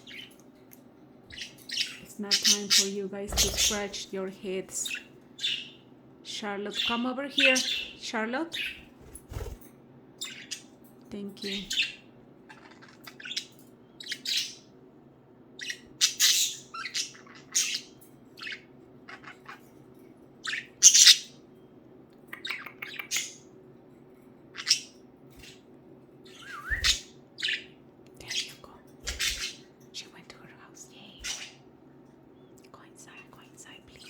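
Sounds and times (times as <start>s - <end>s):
budgies chirping and squawking: 0.0s - 0.4s, 1.3s - 4.2s, 4.8s - 5.8s, 6.8s - 9.6s, 11.4s - 14.7s, 15.6s - 19.7s, 20.4s - 21.4s, 24.6s - 25.6s, 26.2s - 29.7s, 31.2s - 31.6s
faint steady hum: 0.0s - 34.0s.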